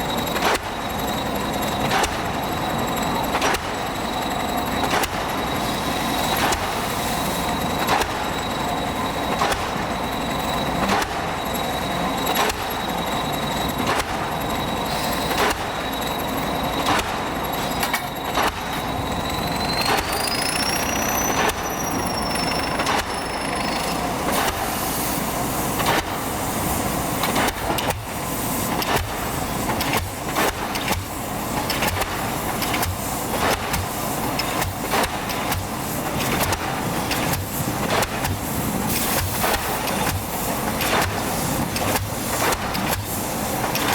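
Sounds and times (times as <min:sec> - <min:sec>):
machine running: 0:00.0 - 0:26.5
thin high whine: 0:05.4 - 0:25.5.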